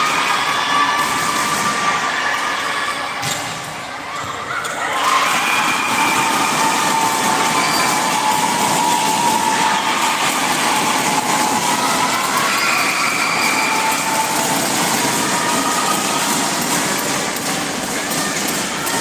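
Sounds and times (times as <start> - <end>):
crowd din: 0.0 - 19.0.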